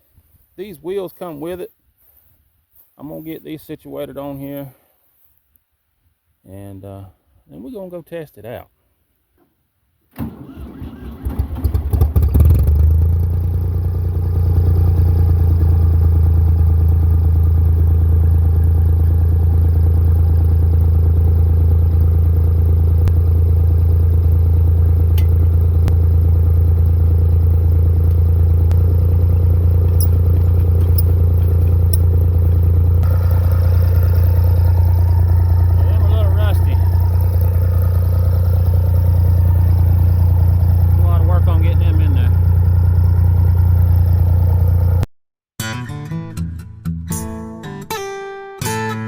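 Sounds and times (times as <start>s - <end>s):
tractor engine running: 10.2s - 45.1s.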